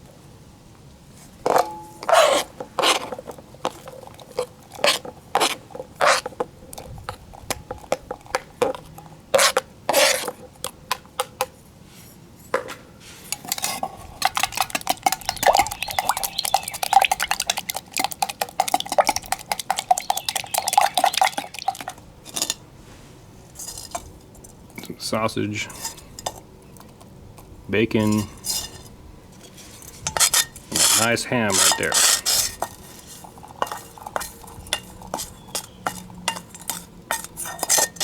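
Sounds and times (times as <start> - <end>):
eggs beaten in metal container: 13.5 - 22.0, 30.0 - 38.0.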